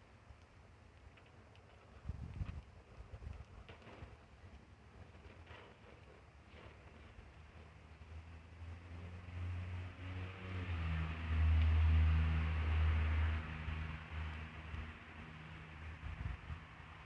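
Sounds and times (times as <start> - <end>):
passing vehicle engine hum: 6.6 - 17.0.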